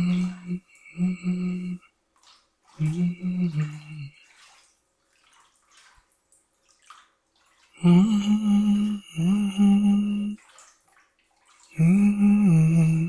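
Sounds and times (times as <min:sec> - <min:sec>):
man humming low notes: 0:00.0 - 0:01.8, 0:02.8 - 0:04.2, 0:07.8 - 0:10.4, 0:11.8 - 0:13.0
bath water splashing and dripping: 0:00.0 - 0:13.0.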